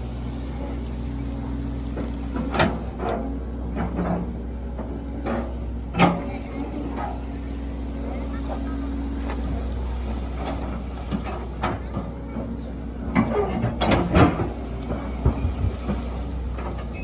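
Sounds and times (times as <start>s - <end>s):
excavator diesel engine running: 0.0s - 17.0s
excavator bucket knocks and clanks: 13.1s - 17.0s.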